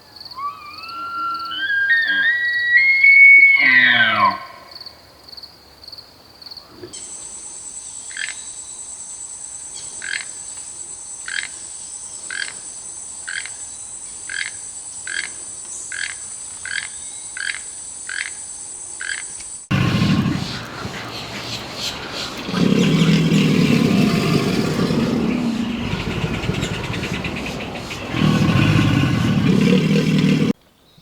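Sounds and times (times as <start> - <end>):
animal calling: 0.3 - 4.7, 19.7 - 30.6.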